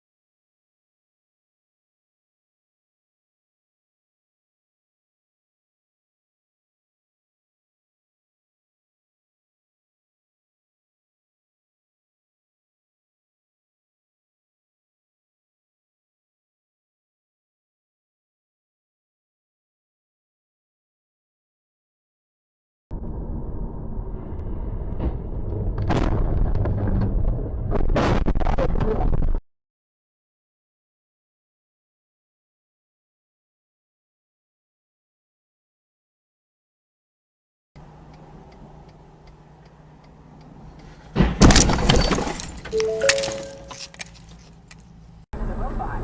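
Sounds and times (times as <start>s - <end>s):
heavy low rumble: 22.9s - 29.4s
car crash impact: 24.9s - 27.1s, 41.1s - 44.0s
glass shattering: 41.4s - 44.3s.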